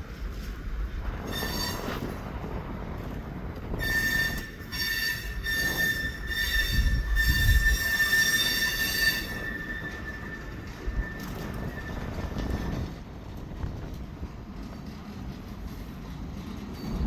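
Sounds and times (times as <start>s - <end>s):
low rumble of moving train: 0.0s - 17.0s
train wheels squealing: 1.1s - 2.4s, 3.7s - 13.2s, 15.1s - 17.0s.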